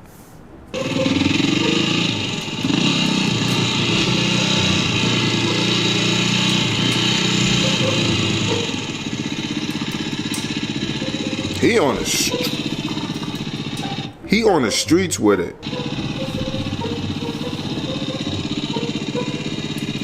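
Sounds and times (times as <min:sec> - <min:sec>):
dirt bike engine revving: 0:00.7 - 0:20.0.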